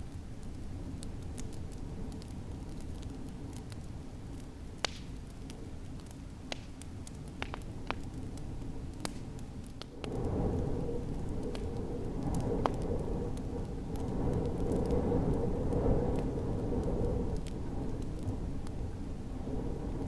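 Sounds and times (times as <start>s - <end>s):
wood fire crackling: 0.0s - 20.0s
snowstorm wind rumbling: 7.6s - 20.0s.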